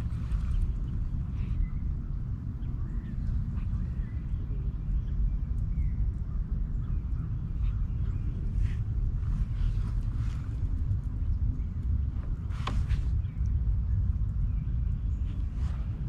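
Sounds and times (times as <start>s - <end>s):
birds chirping: 0.0s - 16.0s
low outdoor rumble: 0.0s - 16.0s.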